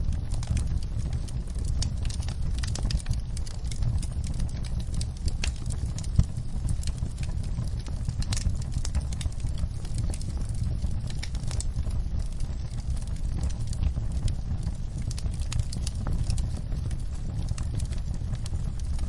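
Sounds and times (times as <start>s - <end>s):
fire crackling and popping: 0.0s - 19.0s
low fire rumble: 0.0s - 19.0s.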